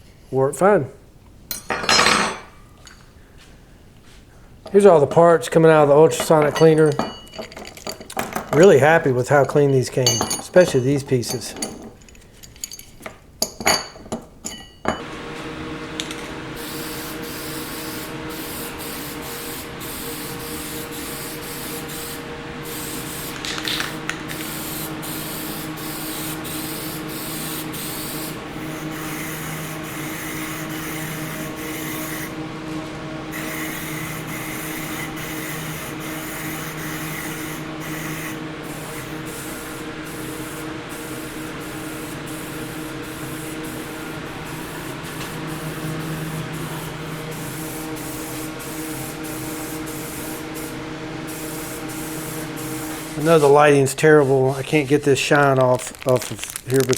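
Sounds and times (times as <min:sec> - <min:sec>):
metal parts clinking: 0:01.5 - 0:03.1, 0:06.2 - 0:08.7, 0:09.5 - 0:14.9, 0:55.6 - 0:56.9
low motor hum: 0:15.0 - 0:53.5
paint spray hiss: 0:16.6 - 0:32.4, 0:33.3 - 0:53.6.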